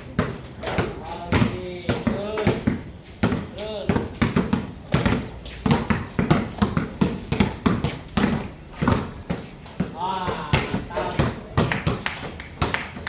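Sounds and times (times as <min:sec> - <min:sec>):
basketballs bouncing on hard court: 0:00.0 - 0:13.0.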